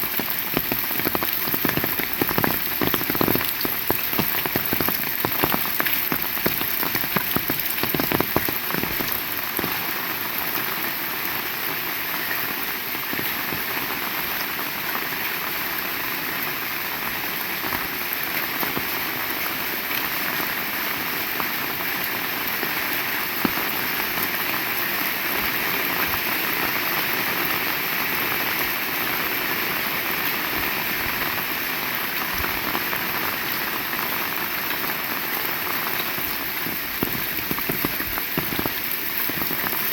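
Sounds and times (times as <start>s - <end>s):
raindrops tapping: 0.0s - 10.7s, 17.2s - 19.4s, 21.4s - 31.5s, 32.3s - 39.9s.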